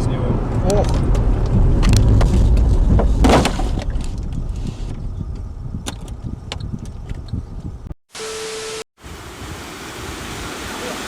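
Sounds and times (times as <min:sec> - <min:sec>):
low vehicle rumble: 0:00.0 - 0:08.0
sharp clicks and knocks: 0:00.7 - 0:07.4.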